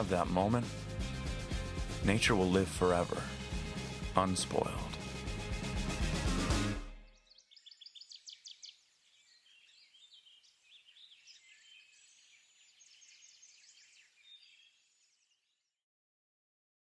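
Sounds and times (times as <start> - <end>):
songbirds chirping: 0.0 - 0.8, 7.0 - 15.8.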